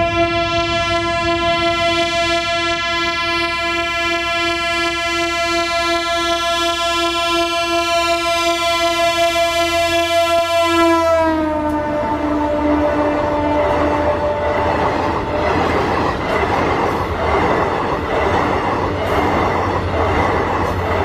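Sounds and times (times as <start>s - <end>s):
train horn long note: 0.0s - 15.6s
train rumbling: 0.0s - 21.0s.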